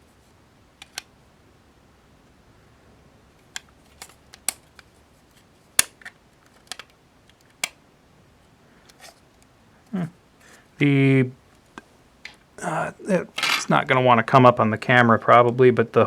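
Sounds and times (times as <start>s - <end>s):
plastic panels clicking: 0.8s - 1.1s, 3.4s - 4.9s, 5.8s - 7.8s.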